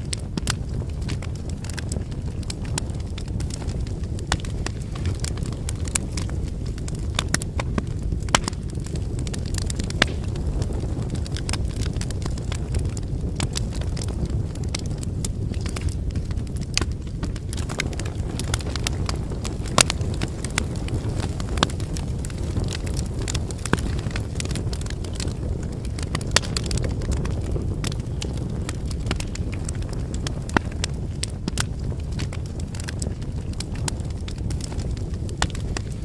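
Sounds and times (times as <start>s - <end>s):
campfire crackling and popping: 0.0s - 36.0s
low fire rumble: 0.0s - 36.0s.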